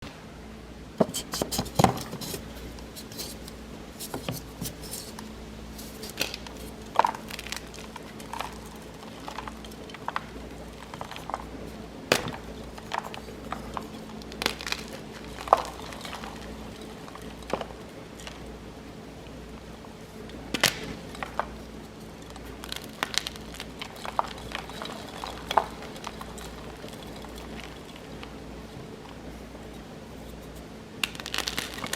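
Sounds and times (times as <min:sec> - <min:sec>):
chalk being crushed: 0:01.0 - 0:18.4, 0:20.5 - 0:31.9.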